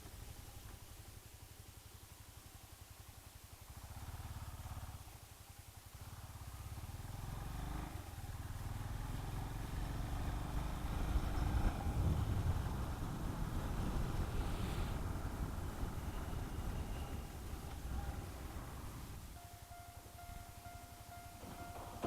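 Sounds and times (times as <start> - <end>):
motorcycle engine accelerating: 3.7 - 5.3, 5.9 - 22.0
wind noise: 11.0 - 19.3.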